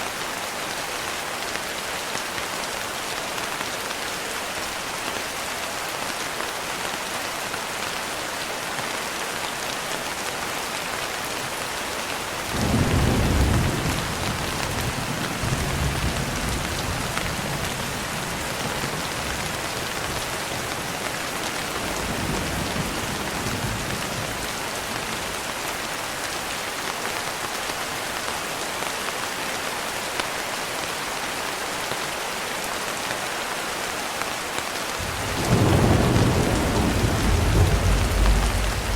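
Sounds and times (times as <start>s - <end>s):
steady rain hissing: 0.0s - 38.9s
thunder rumbling: 12.6s - 17.8s, 35.0s - 38.9s.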